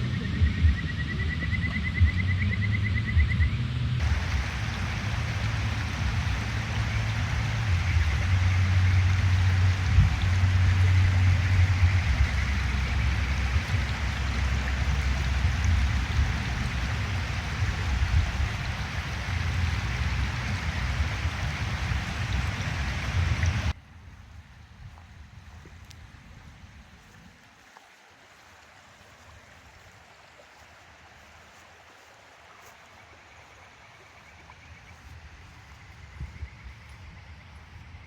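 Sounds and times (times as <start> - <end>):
stream rushing over rocks: 4.0 - 23.8, 27.0 - 35.8.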